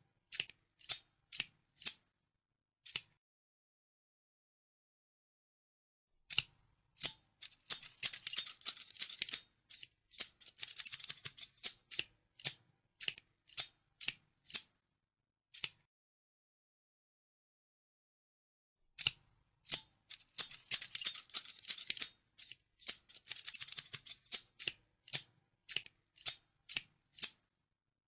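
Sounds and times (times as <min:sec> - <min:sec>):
scissors snipping: 0:02.9 - 0:03.2, 0:06.3 - 0:14.7, 0:15.6 - 0:15.8, 0:19.0 - 0:27.4.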